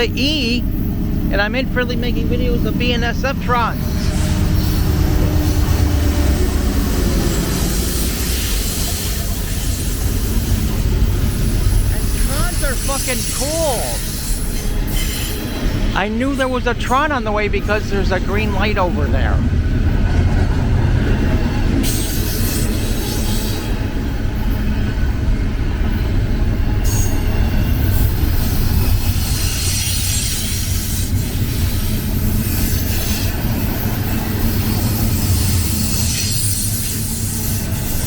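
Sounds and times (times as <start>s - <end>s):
freight train rumbling on rails: 0.0s - 38.0s
train hiss: 3.8s - 16.6s, 21.8s - 24.9s, 26.8s - 38.0s
train wheel squeal: 3.8s - 16.6s, 20.8s - 38.0s.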